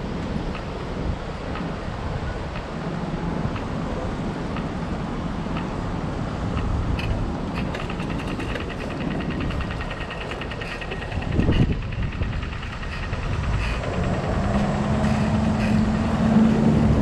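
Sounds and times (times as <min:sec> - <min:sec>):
wind: 0:00.0 - 0:17.0
bicycle tyres rumbling: 0:06.5 - 0:17.0
freewheel clicking: 0:06.6 - 0:17.0.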